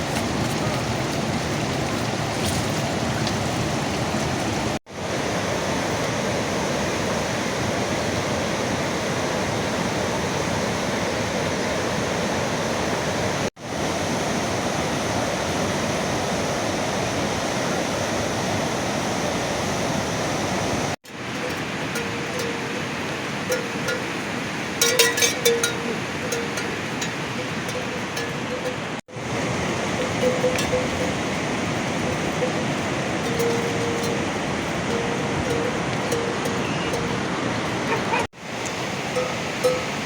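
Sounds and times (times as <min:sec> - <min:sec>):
heavy rainfall: 0:00.0 - 0:07.2.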